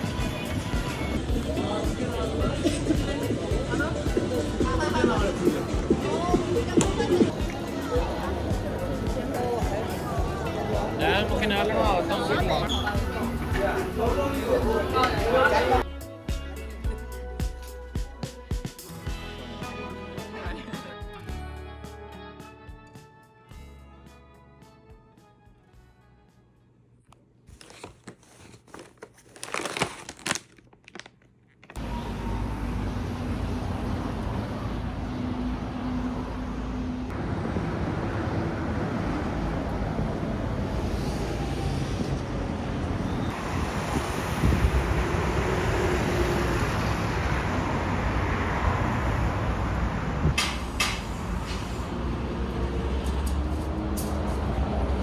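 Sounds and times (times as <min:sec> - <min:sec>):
traffic noise with low rumble: 0:00.0 - 0:15.9, 0:31.7 - 0:55.0.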